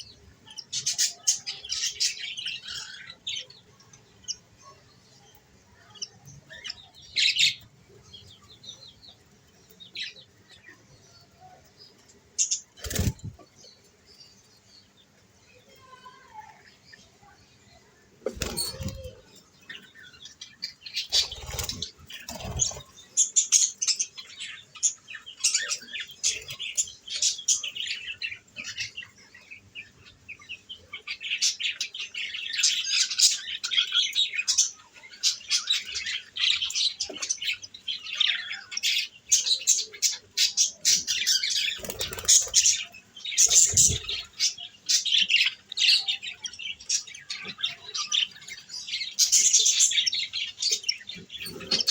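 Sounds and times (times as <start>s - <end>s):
budgerigars chirping: 38.3s - 48.0s.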